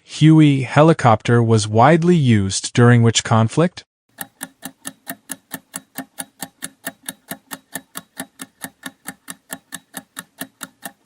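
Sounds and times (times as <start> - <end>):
timer ticking: 4.1 - 11.0.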